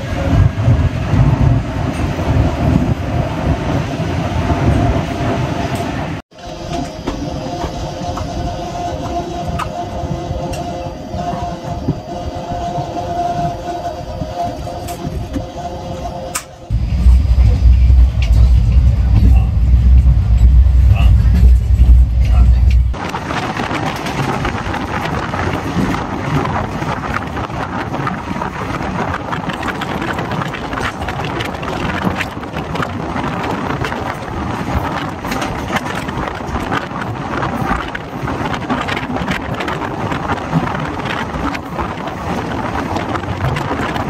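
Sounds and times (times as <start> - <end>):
wheel-on-rail noise: 0.0 - 44.0
wind rushing: 0.0 - 44.0
rattles and clicks: 16.3 - 44.0.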